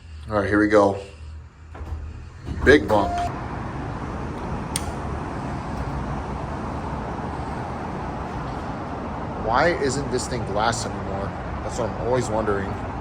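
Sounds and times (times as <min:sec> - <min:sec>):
elevator motor rumble: 0:01.3 - 0:13.0
sharp click: 0:04.7 - 0:05.0.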